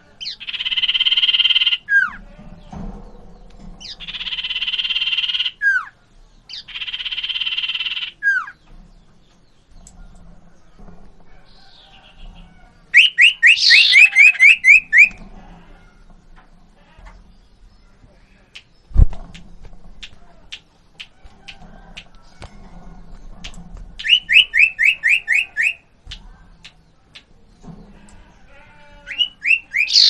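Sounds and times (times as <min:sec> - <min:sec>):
bird buzzy rasping calls: 0:03.8 - 0:08.6, 0:12.9 - 0:15.7, 0:27.9 - 0:30.0
bird whistled notes: 0:13.0 - 0:15.2, 0:24.0 - 0:25.8, 0:29.1 - 0:30.0.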